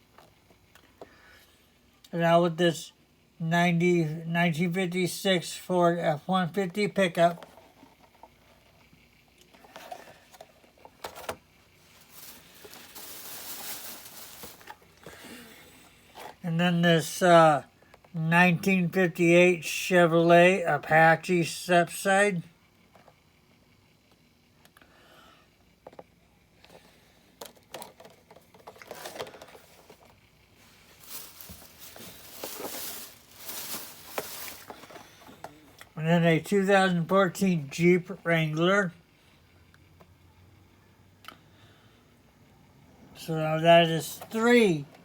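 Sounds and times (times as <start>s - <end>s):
packaging rustling: 9.5s - 15.3s, 27.7s - 35.8s.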